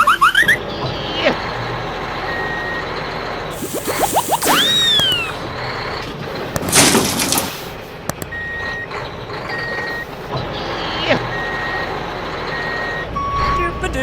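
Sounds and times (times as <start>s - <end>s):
truck reversing alarm beeps: 10.8s - 14.0s.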